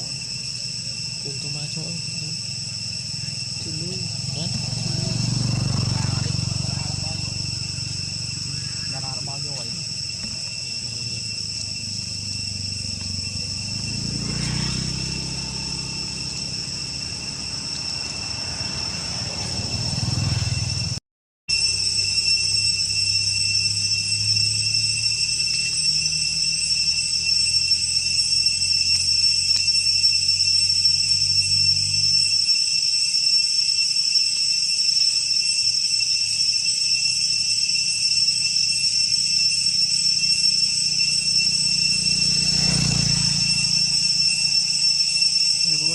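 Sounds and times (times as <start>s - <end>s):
insects chirring: 0.0s - 45.9s.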